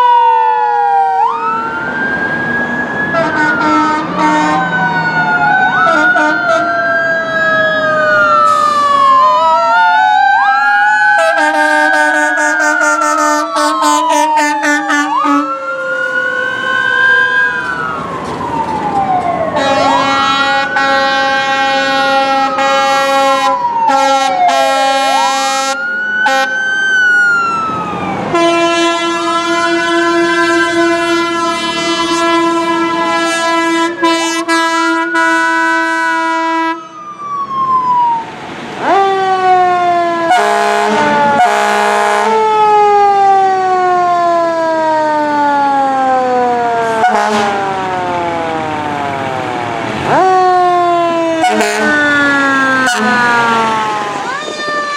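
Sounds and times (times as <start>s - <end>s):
wailing siren: 0.0s - 54.9s
fire truck air horns: 3.1s - 5.0s, 5.7s - 6.8s, 8.2s - 9.2s, 11.1s - 17.9s, 19.5s - 26.6s, 28.3s - 37.0s, 38.8s - 54.9s.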